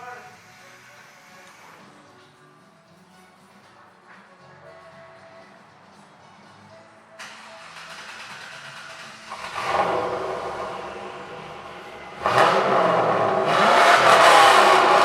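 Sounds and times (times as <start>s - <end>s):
car engine revving: 7.2s - 15.0s.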